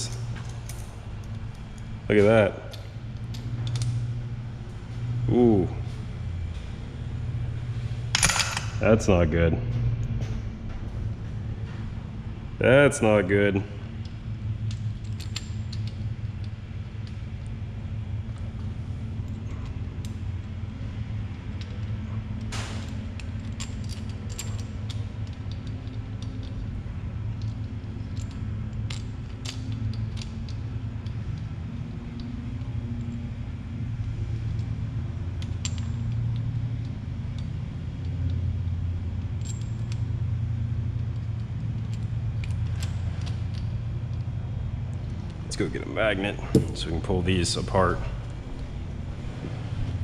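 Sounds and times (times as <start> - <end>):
small metal parts clinking: 0.0 - 4.2, 8.0 - 8.8, 13.9 - 17.6, 18.2 - 45.7
steady low hum: 0.0 - 50.0.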